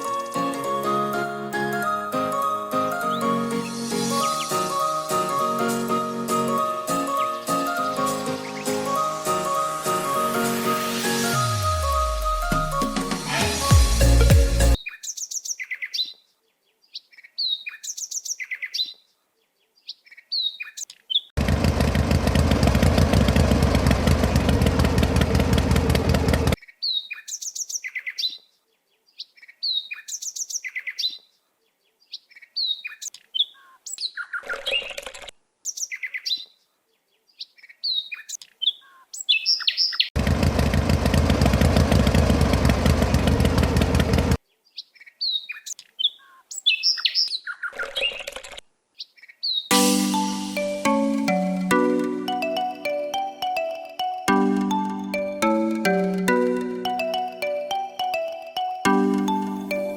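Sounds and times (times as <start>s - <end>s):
birds chirping: 0.0s - 10.0s
engine running in fast pulse: 21.4s - 26.6s, 40.2s - 44.4s.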